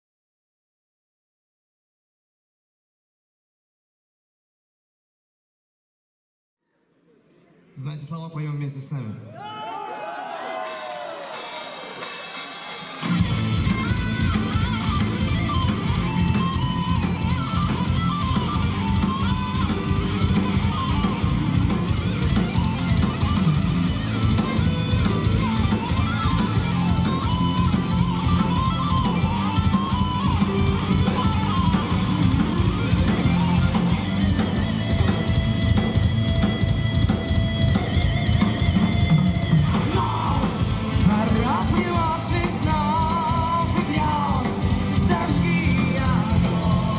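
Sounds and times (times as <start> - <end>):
fast driving drum kit: 10.6 - 46.9
bass guitar: 13.0 - 46.9
lead electric guitar melody: 13.1 - 46.9.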